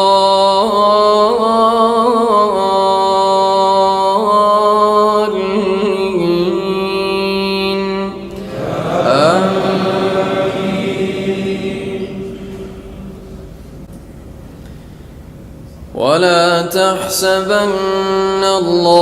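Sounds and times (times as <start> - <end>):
congregation chanting in unison: 5.4 - 13.9
man reciting a long note: 15.9 - 19.0.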